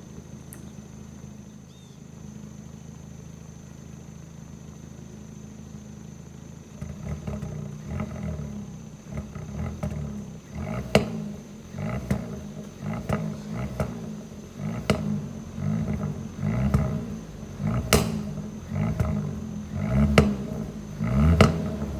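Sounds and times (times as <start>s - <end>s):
car engine revving: 6.3s - 21.9s
exhaust pops and bangs: 6.7s - 21.9s.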